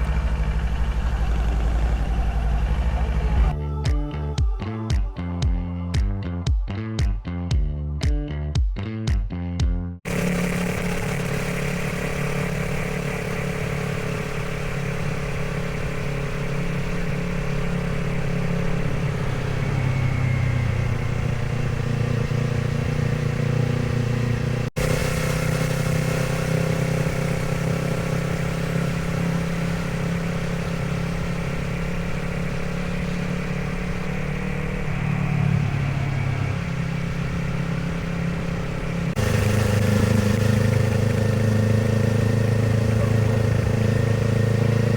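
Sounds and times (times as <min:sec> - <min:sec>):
motorcycle engine running: 0:00.0 - 0:08.7, 0:09.6 - 0:44.9.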